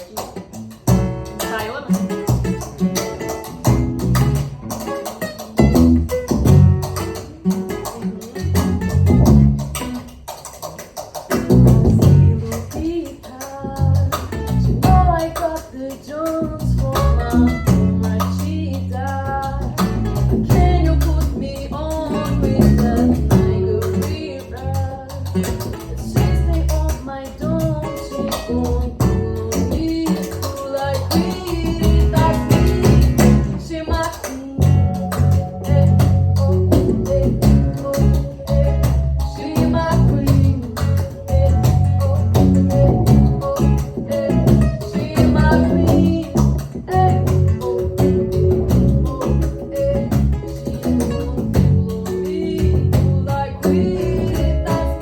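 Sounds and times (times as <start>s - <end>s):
plucked guitar: 0.0s - 55.0s
person singing: 11.9s - 55.0s
steady low beat: 34.6s - 55.0s.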